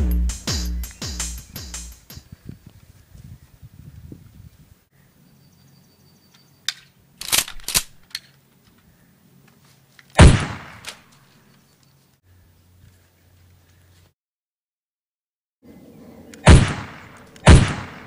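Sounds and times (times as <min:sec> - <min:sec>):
gunshots: 0:10.2 - 0:11.0, 0:16.4 - 0:18.0.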